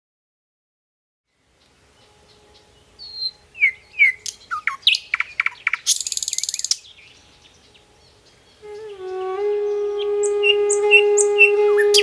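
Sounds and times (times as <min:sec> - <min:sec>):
songbirds chirping and trilling: 0:01.3 - 0:12.0
held low musical note: 0:08.6 - 0:12.0.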